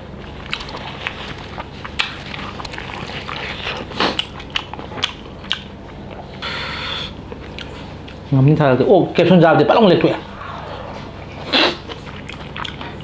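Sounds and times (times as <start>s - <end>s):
chewing with wet mouth clicks: 0.4s - 6.3s, 7.3s - 8.2s, 11.8s - 13.0s.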